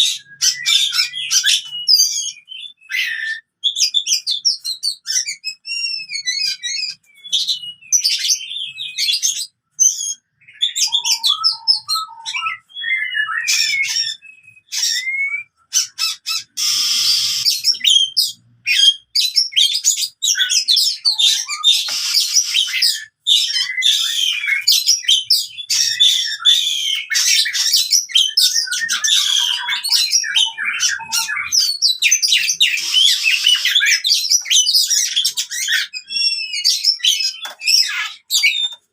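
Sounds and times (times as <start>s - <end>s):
bird singing whistles: 0.0s - 15.6s, 16.4s - 38.8s
bird harsh chattering: 13.4s - 38.8s.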